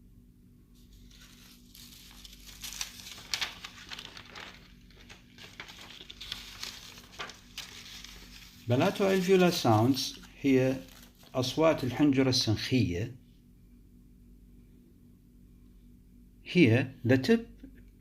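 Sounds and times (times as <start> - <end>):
low electrical hum: 0.0 - 18.0
rustling and crinkling handling noise: 0.8 - 12.2.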